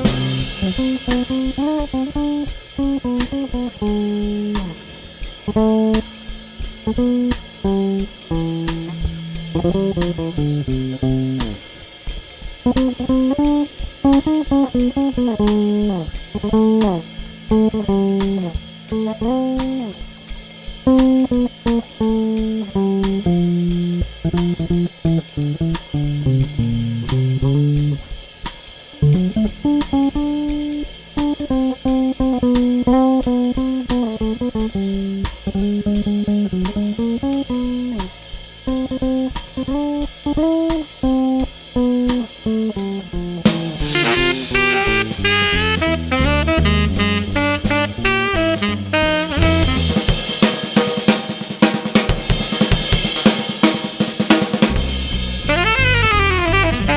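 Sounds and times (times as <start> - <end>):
low walking bass line: 0.0 - 1.7, 2.9 - 11.6, 22.0 - 28.0, 41.8 - 50.2, 54.7 - 56.9
cymbal keeping time: 0.0 - 12.7, 42.3 - 51.6
jazz group playing swing: 0.0 - 56.9
plucked solo line: 43.6 - 50.0, 55.0 - 56.9.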